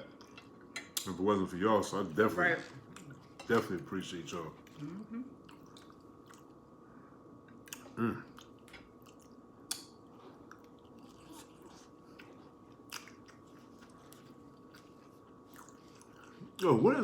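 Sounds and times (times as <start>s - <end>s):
person humming: 4.8s - 5.3s, 8.0s - 8.2s
person chewing: 5.4s - 6.6s, 7.5s - 16.6s.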